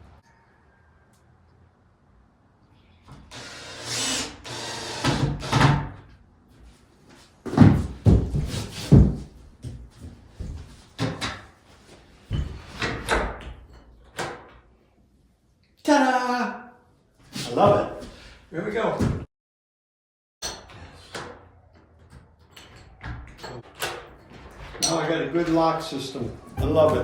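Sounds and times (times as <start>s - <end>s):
door scraping and rattling: 20.7s - 27.0s.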